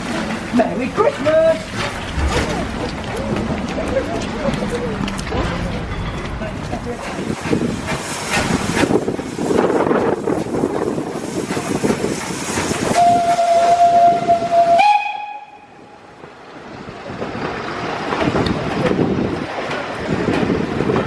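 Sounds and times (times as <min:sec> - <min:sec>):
train noise and hiss: 0:00.0 - 0:21.0
steam locomotive whistle: 0:12.8 - 0:15.8.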